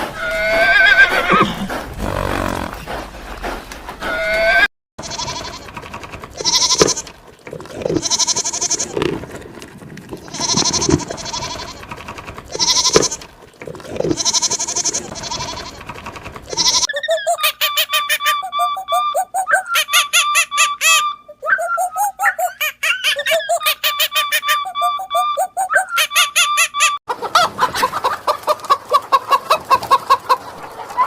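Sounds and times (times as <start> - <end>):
animal bleating calls: 4.1 - 5.7, 6.4 - 7.1, 7.7 - 9.2, 10.2 - 13.3, 14.0 - 15.8, 16.5 - 16.9.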